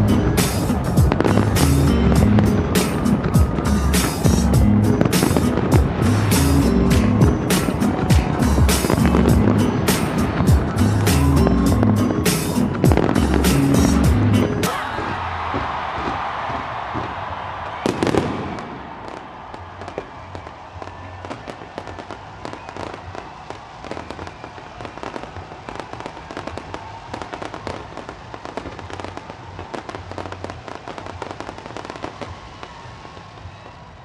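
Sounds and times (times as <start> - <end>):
rapid firework pops: 15.0 - 33.2
loud firework bang: 17.7 - 20.1.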